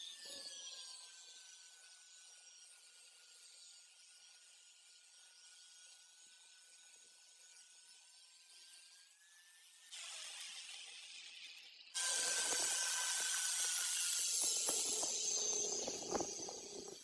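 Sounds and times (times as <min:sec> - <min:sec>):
hissing spray: 0:12.0 - 0:16.8.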